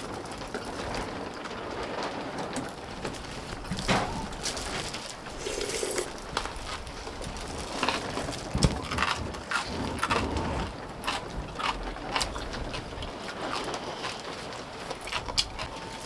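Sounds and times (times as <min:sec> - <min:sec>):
crunchy chewing: 0:03.6 - 0:16.0.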